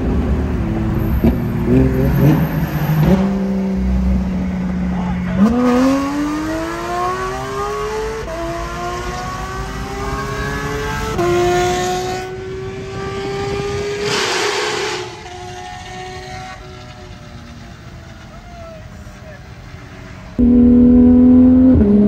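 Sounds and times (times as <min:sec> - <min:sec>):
car engine under full throttle: 0:00.0 - 0:18.4, 0:19.1 - 0:22.0
rushing noise: 0:12.8 - 0:19.2.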